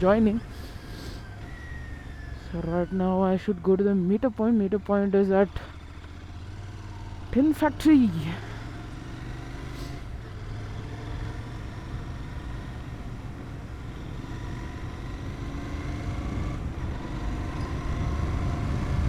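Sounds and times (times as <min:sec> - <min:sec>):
motorcycle engine running: 0:00.0 - 0:19.0
wind rumble on microphone: 0:16.4 - 0:19.0.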